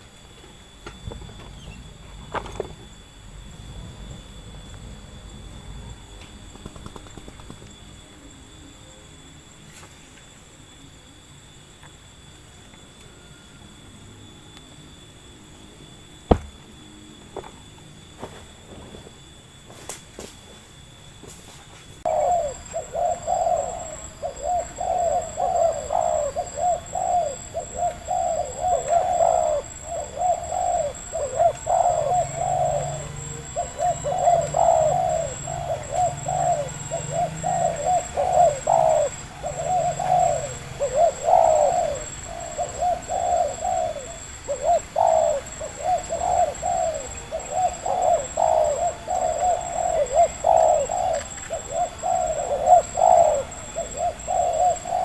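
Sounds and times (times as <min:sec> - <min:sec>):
dove cooing: 0:00.0 - 0:08.0, 0:16.3 - 0:16.6, 0:22.0 - 0:55.0.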